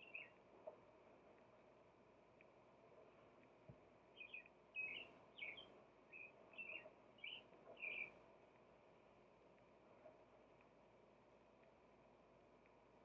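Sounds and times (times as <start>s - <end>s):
faint songbird chirping: 0.0s - 0.5s, 4.1s - 8.3s.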